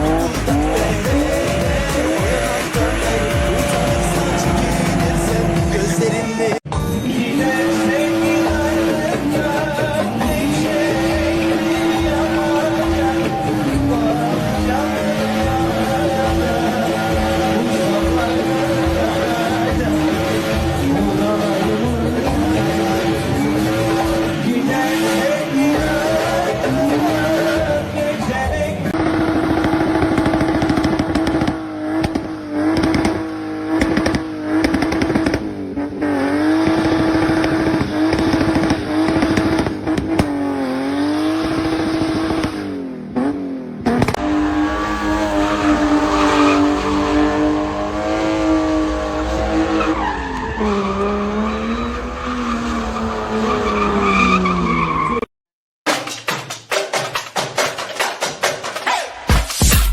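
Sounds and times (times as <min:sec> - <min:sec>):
car engine at high revs: 0:00.0 - 0:06.6, 0:07.2 - 0:27.8, 0:28.8 - 0:55.2
tyre squeal: 0:49.5 - 0:55.3.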